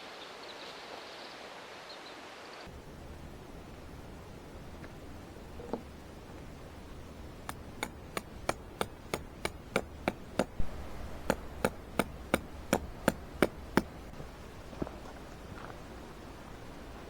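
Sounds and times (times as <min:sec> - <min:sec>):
hammer blows: 0:07.4 - 0:14.2.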